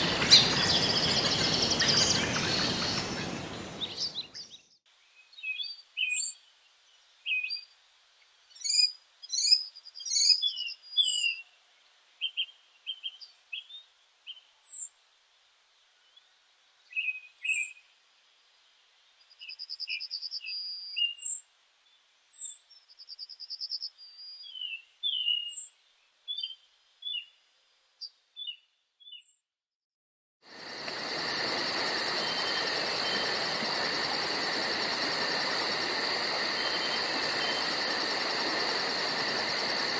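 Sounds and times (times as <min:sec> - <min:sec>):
crickets chirring: 0:00.0 - 0:04.1, 0:30.5 - 0:39.9
songbirds chirping and whistling: 0:00.0 - 0:06.4, 0:23.5 - 0:27.3, 0:28.4 - 0:29.4.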